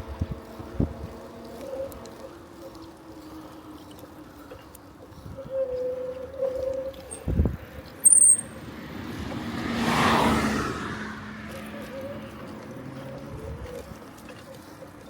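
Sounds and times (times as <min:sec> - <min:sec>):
sharp high-pitched squeak: 0:08.0 - 0:08.6
car passing by: 0:08.4 - 0:13.4.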